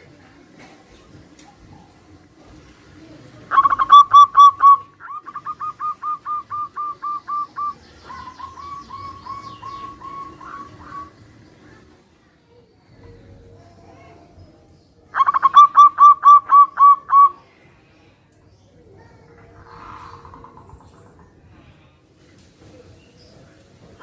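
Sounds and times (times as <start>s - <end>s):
doves cooing: 3.5s - 12.0s, 15.1s - 17.4s, 19.2s - 21.6s.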